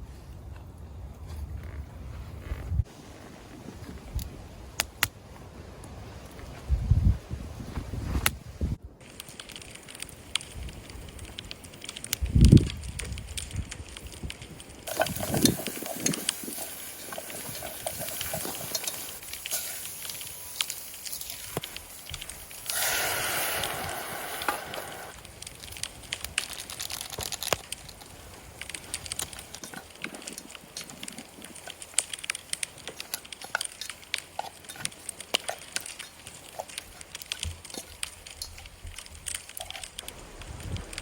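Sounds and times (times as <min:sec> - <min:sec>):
campfire crackling and popping: 0:01.6 - 0:06.6, 0:08.2 - 0:41.0
fire hissing: 0:09.0 - 0:41.0.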